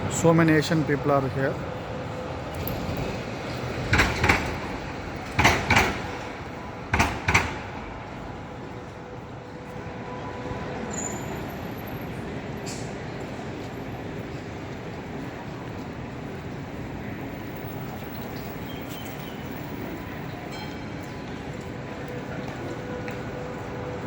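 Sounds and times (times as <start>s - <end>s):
street noise: 0.0s - 24.0s
tram wheels clacking over rail joint: 2.4s - 7.9s.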